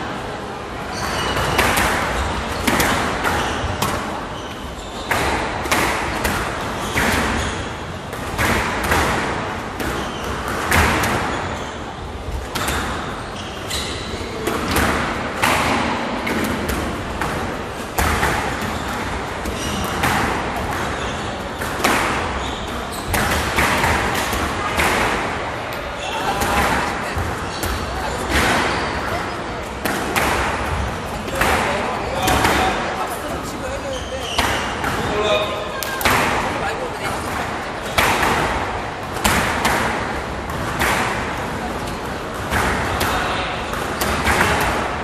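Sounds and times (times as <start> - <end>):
squash ball knocks: 1.4 - 4.2, 8.1 - 11.4, 21.6 - 28.8, 29.7 - 32.8, 35.8 - 41.6, 42.3 - 45.0.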